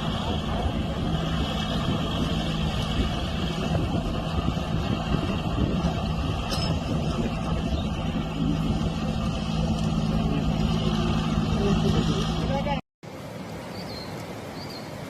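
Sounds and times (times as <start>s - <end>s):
large vehicle engine running: 0.0s - 12.8s.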